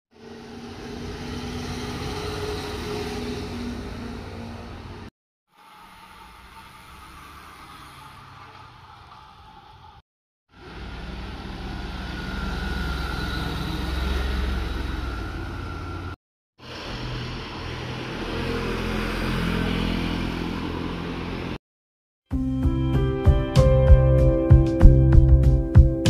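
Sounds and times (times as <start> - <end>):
motorcycles passing: 0.2 - 5.1, 10.6 - 21.6.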